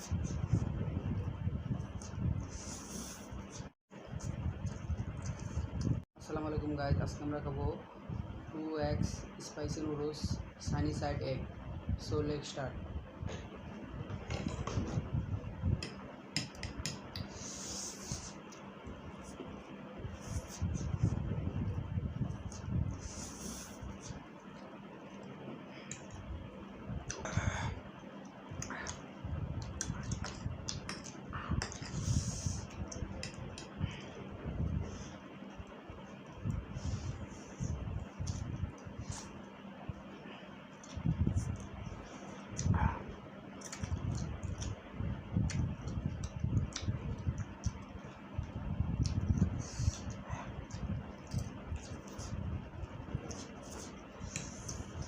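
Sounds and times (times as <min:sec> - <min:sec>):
wet mouth clicks and smacks: 0:43.6 - 0:44.8, 0:49.0 - 0:52.2.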